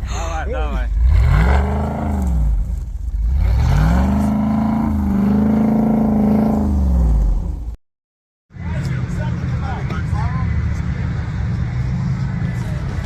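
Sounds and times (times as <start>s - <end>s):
off-road engine revving: 0.0s - 7.8s.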